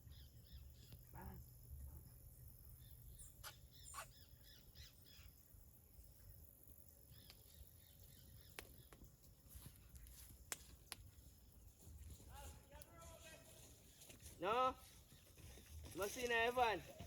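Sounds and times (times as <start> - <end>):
wild birds chirping: 0.0 - 12.7.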